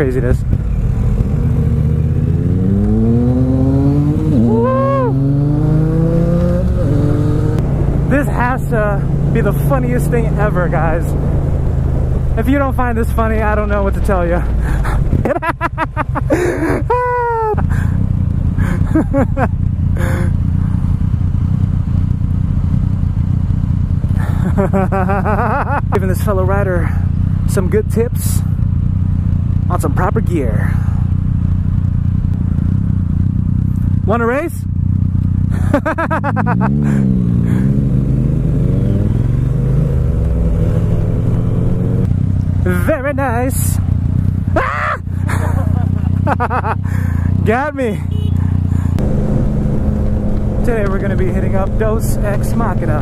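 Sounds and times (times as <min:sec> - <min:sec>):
wind while riding: 0:00.0 - 0:08.1, 0:10.8 - 0:12.4, 0:14.4 - 0:17.0, 0:34.7 - 0:42.8, 0:48.1 - 0:53.0
motorbike rumble: 0:00.0 - 0:53.0.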